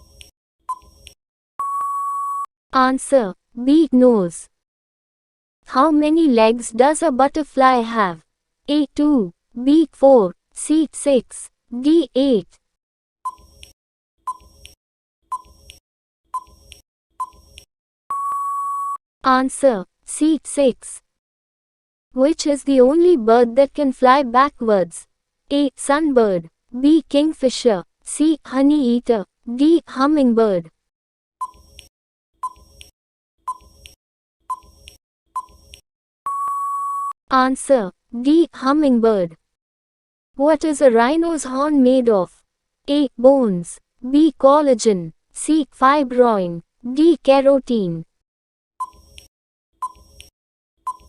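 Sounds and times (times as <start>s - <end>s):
long steady beep: 1.6s - 2.5s, 18.1s - 19.0s, 36.3s - 37.2s
short electronic beeps: 1.6s - 2.5s, 16.4s - 16.6s, 18.1s - 19.0s, 34.5s - 34.8s, 36.3s - 37.2s, 49.8s - 50.2s.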